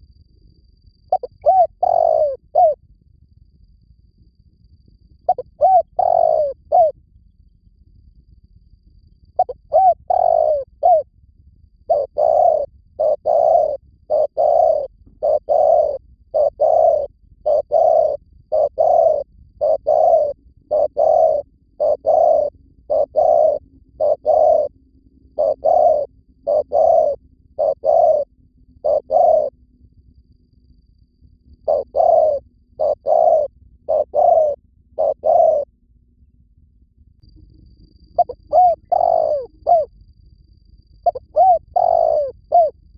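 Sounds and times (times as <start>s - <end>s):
dove cooing: 1.1s - 2.8s, 5.3s - 7.0s, 9.4s - 11.1s, 11.9s - 24.7s, 25.3s - 29.6s, 31.6s - 35.7s, 38.2s - 39.9s, 41.0s - 42.8s.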